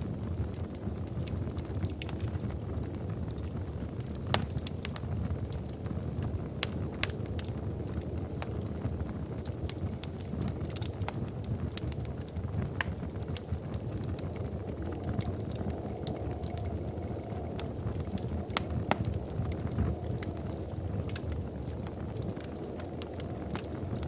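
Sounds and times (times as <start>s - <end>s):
low roar of flames: 0.0s - 24.0s
wood crackling and popping: 0.0s - 24.0s.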